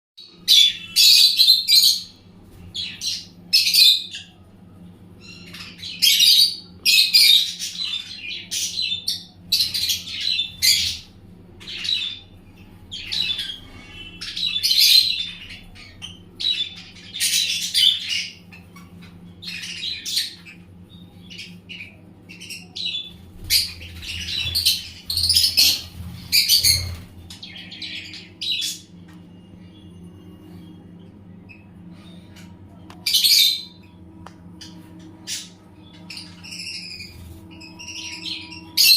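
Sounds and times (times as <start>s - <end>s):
faint low hum: 0.2s - 38.9s
parrots squawking and chirping: 5.2s - 20.6s, 21.3s - 29.1s, 34.6s - 38.9s.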